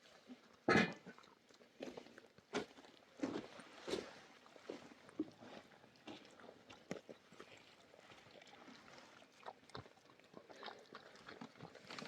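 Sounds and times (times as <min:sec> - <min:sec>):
quiet eating and chewing: 0:05.4 - 0:12.0.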